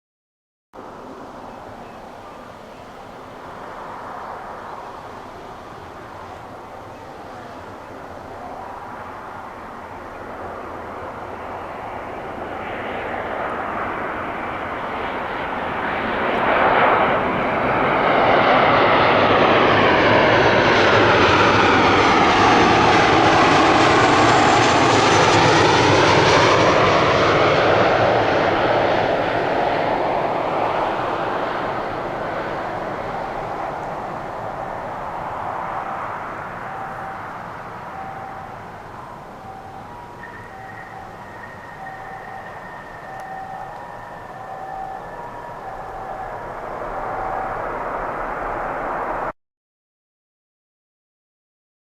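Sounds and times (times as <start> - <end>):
jet airliner passing overhead: 0.8 - 49.4.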